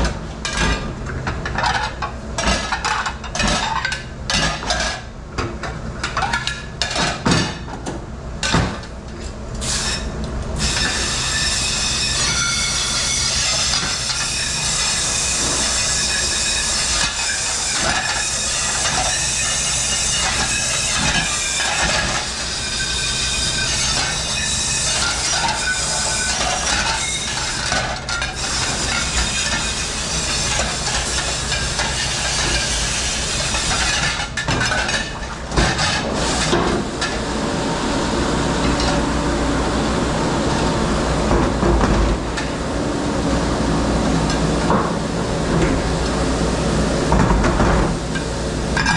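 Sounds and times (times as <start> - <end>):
dishes and racks clattering: 0.0 - 7.8, 12.2 - 37.2, 47.1 - 48.9
dishwashing machine running: 0.0 - 48.9.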